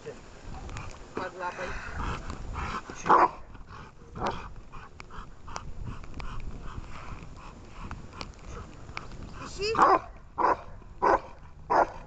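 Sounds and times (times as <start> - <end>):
dog barking: 3.1 - 3.4, 9.8 - 12.0.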